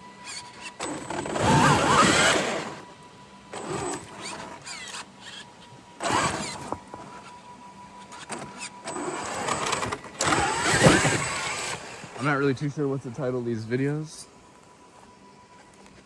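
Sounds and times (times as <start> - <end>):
rc truck motor revving whine: 0.0 - 12.6
tyres scrabbling: 8.2 - 12.6.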